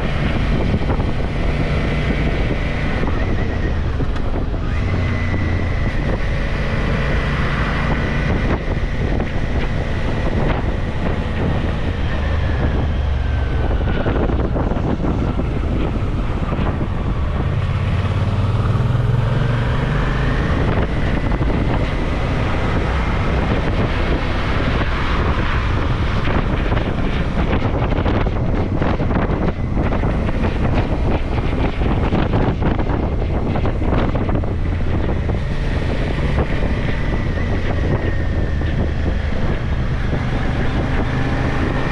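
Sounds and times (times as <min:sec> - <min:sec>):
motorcycle engine running: 0:00.0 - 0:41.9
wind rush on microphone: 0:00.0 - 0:41.9.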